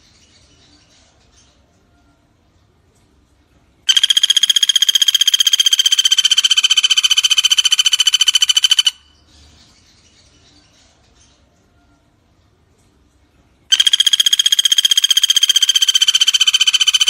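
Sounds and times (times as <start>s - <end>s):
woodpecker rattling trill: 3.9s - 9.1s, 13.7s - 17.0s.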